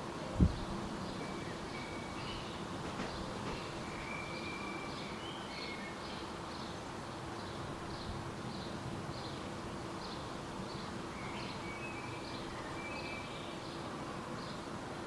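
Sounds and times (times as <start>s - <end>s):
birds whistling: 1.2s - 6.2s.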